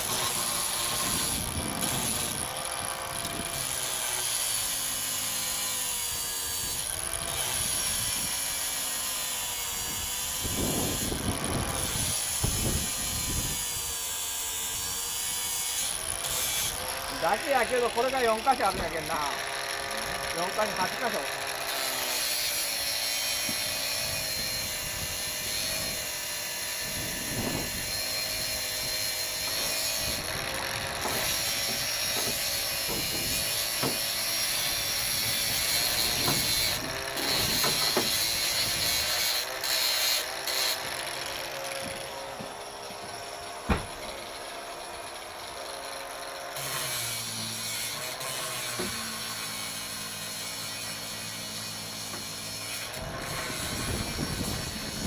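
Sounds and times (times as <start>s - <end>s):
power tool running on metal: 0.0s - 55.0s.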